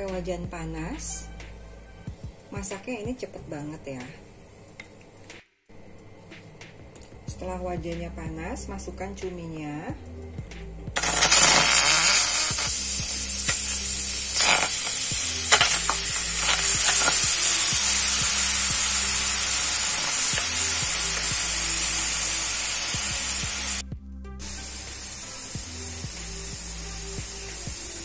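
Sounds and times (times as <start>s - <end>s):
squid sizzling in a frying pan: 11.0s - 23.8s, 24.4s - 28.0s.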